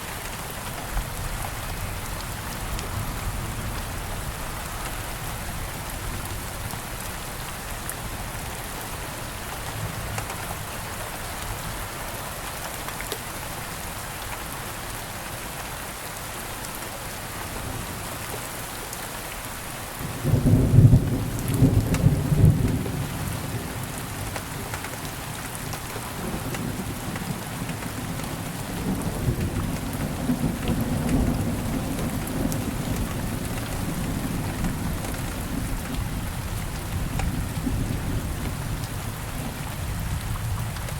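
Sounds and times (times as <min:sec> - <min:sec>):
steady rain falling: 0:00.0 - 0:40.9
thunder clap and rumble: 0:20.2 - 0:24.3, 0:26.2 - 0:40.9.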